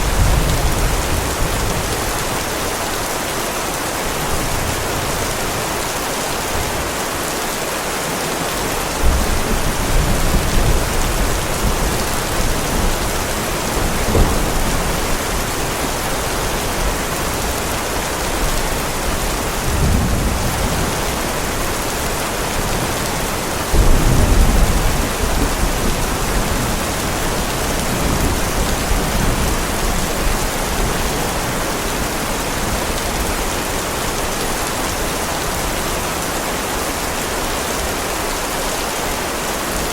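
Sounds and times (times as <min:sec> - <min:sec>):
heavy rain: 0:00.0 - 0:39.9
thunder rolling: 0:09.0 - 0:17.6, 0:19.6 - 0:30.9
sharp thunder crack: 0:23.7 - 0:26.4.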